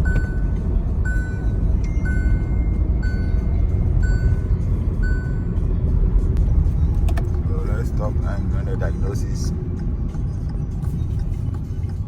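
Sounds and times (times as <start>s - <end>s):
dashboard warning chime beeping: 0.0s - 5.6s
car engine rumble from cabin: 0.0s - 12.0s.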